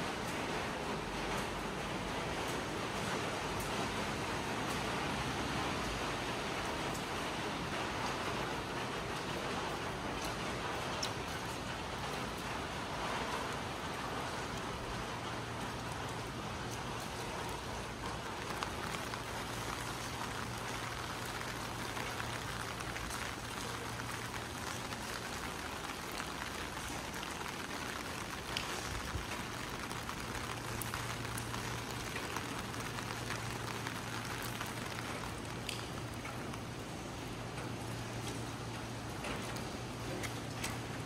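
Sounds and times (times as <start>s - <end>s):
rain on hard surfaces: 0.0s - 41.0s
drip ticks: 10.2s - 12.2s, 34.4s - 36.6s.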